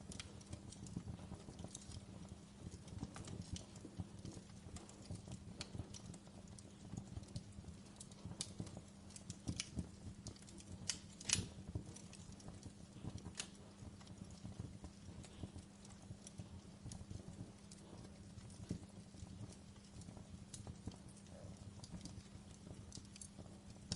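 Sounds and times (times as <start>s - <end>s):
logs crackling in fireplace: 0.0s - 23.9s
steady low hum: 0.0s - 23.9s.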